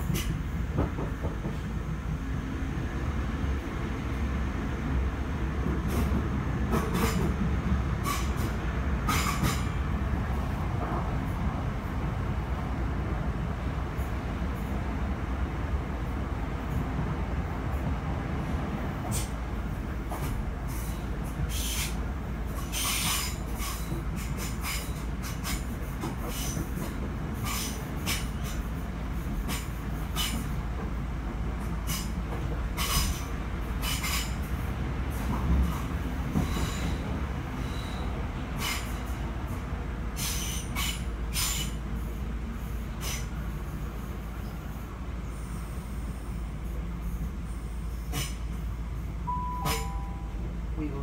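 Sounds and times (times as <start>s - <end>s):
train interior low rumble: 0.0s - 51.0s
hissing clatter of wheels: 8.0s - 9.8s, 19.0s - 19.4s, 20.1s - 30.5s, 31.8s - 39.2s, 40.1s - 41.8s, 42.9s - 43.5s, 47.0s - 48.6s.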